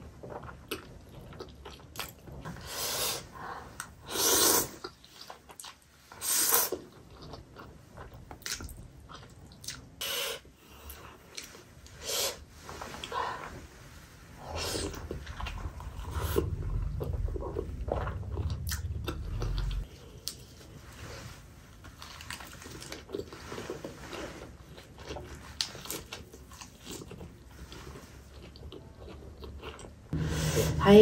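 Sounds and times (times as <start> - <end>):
biting and chewing food: 0.0 - 2.6, 14.9 - 20.5
low rumble: 14.3 - 20.1, 30.2 - 31.0.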